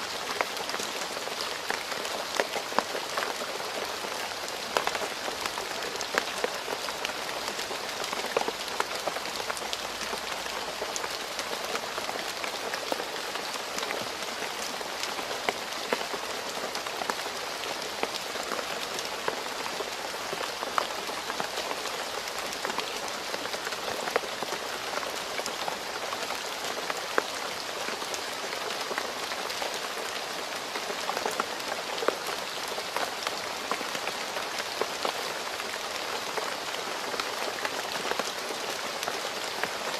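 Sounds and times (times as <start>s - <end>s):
rain falling on a road: 0.0s - 39.9s.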